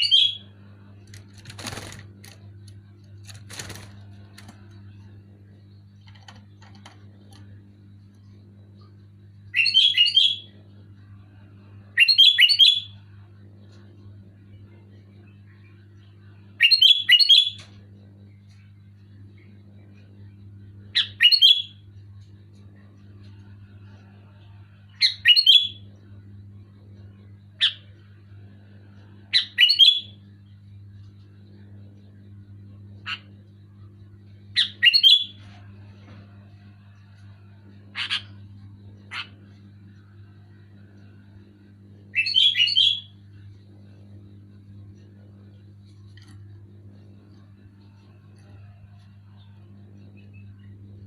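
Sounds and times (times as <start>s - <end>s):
steady low hum: 0.0s - 51.0s
bird singing whistled phrases: 42.2s - 43.1s.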